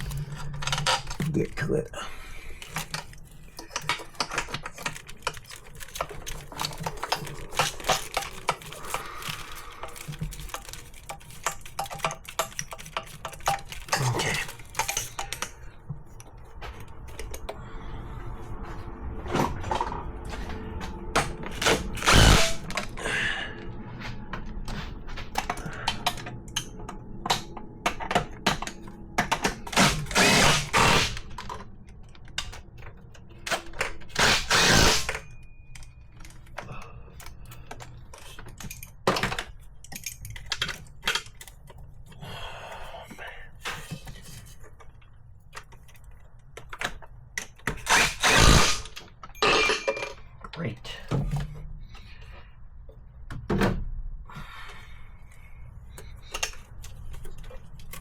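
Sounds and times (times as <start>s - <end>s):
loud rushes: 19.1s - 23.1s.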